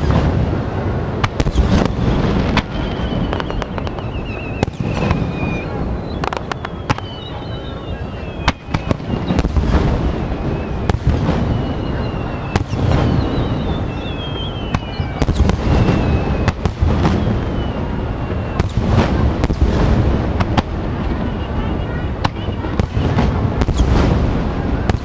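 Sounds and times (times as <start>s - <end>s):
firework whistling: 0.0s - 25.0s
low rumble of explosions: 0.0s - 25.0s
firework shells bursting: 1.2s - 7.7s.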